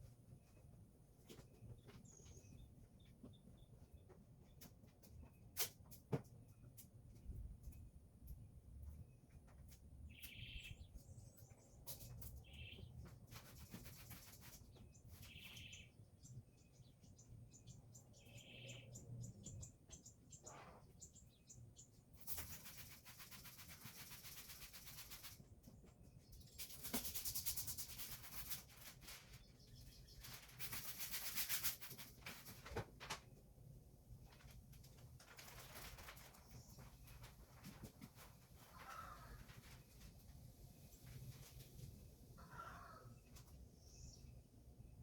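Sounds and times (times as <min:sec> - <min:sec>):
small bird chirping: 0:10.1 - 0:32.0, 0:42.4 - 0:44.4.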